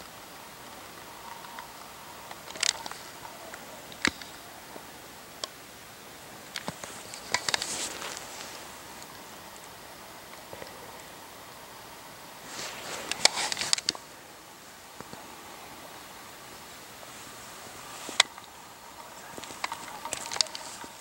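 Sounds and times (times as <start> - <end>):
sharp clicks: 0.0 - 4.5, 6.5 - 11.1, 13.0 - 14.1, 18.1 - 21.0
faint hiss: 0.0 - 21.0
short rustles: 6.6 - 9.2.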